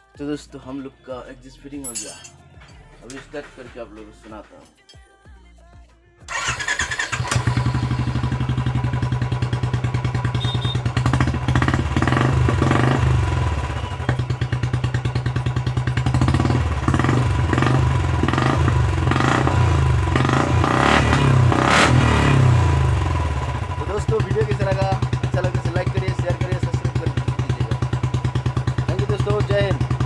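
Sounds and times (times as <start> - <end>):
single-cylinder motorcycle engine: 6.3 - 30.0.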